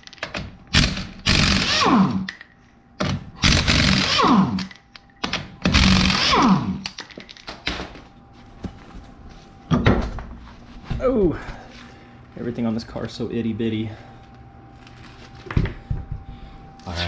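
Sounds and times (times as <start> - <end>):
impact wrench spinning: 0.7 - 2.3, 3.4 - 4.8, 5.6 - 7.0.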